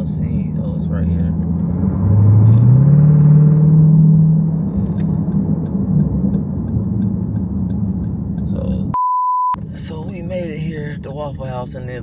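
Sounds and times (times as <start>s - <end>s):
car engine hum: 0.0s - 9.0s, 9.6s - 12.0s
faint regular ticking: 4.8s - 9.0s, 9.8s - 12.0s.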